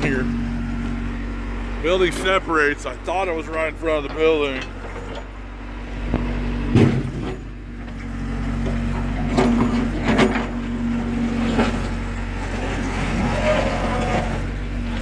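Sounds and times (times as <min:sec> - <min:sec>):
diesel engine running: 0:00.0 - 0:15.0
metal clanks from bucket: 0:08.7 - 0:10.7.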